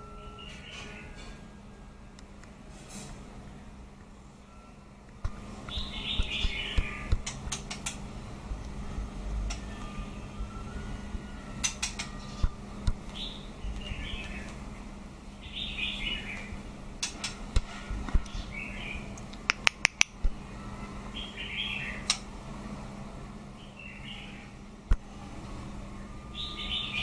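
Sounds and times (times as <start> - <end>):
steady low hum: 0.0 - 27.0
bird chirping calls: 5.6 - 8.0, 10.8 - 14.6, 15.4 - 17.3, 21.1 - 22.2, 26.3 - 27.0
sharp clicks and taps: 19.2 - 20.2.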